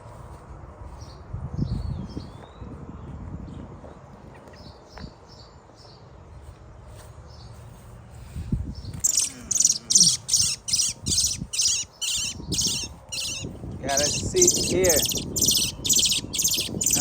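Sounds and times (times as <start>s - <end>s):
bird chirping harshly: 8.8s - 17.0s.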